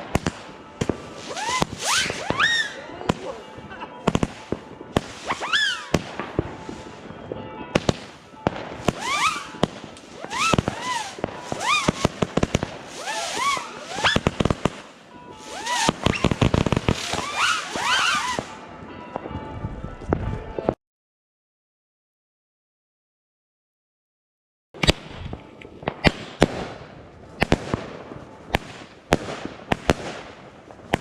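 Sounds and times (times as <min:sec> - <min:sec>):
whistling firework shots: 0:00.0 - 0:07.2, 0:07.8 - 0:18.6
firework bangs and crackle: 0:00.0 - 0:19.4, 0:24.8 - 0:31.0.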